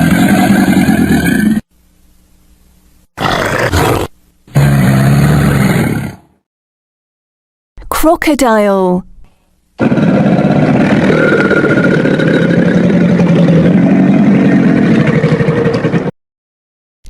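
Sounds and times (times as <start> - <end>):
crocodile growling: 0.0 - 1.6, 3.2 - 6.4, 9.8 - 15.6.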